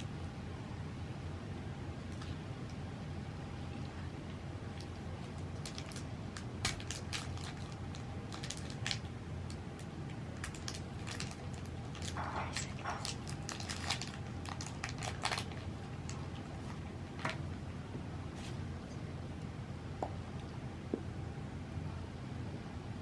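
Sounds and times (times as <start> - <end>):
chewing and crunching food: 3.6 - 17.4.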